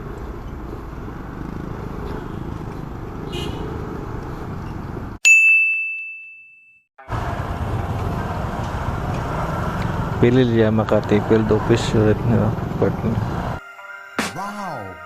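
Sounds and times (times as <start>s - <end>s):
motorcycle wind and road noise: 0.0s - 5.2s, 7.1s - 13.6s
bell-like ding: 5.3s - 6.9s.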